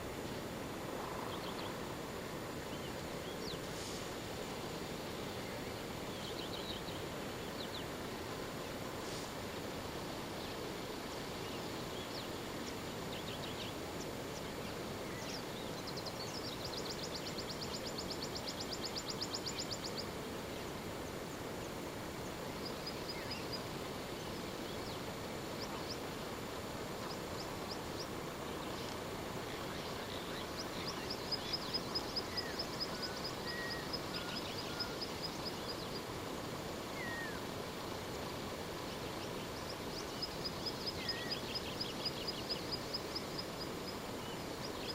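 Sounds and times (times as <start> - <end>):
steady background hiss: 0.0 - 44.9
birds calling with ticking trills: 11.4 - 37.5, 38.2 - 44.9.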